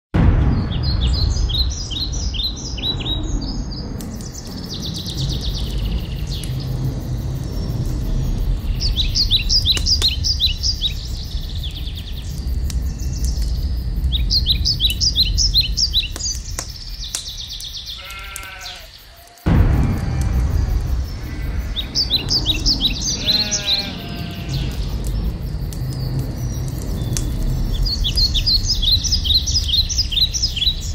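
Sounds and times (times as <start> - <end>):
steady low rumble: 0.2 - 18.3, 19.5 - 30.9
birds chirping: 0.4 - 30.9
low-pitched animal call: 18.0 - 24.9.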